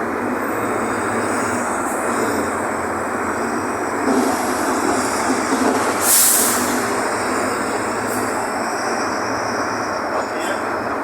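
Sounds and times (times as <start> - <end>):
bus diesel engine running: 0.0 - 11.0
loud hiss of air: 6.0 - 7.0.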